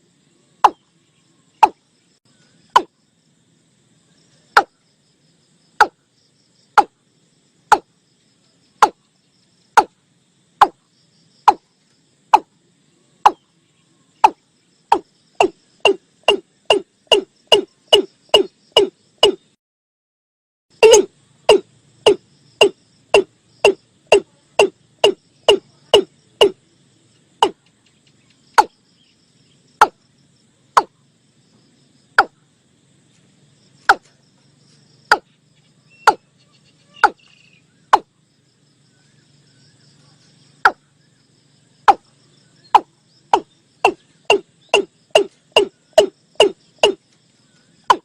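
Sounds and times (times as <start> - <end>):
watercock calling: 35.9 - 36.2, 37.0 - 38.1.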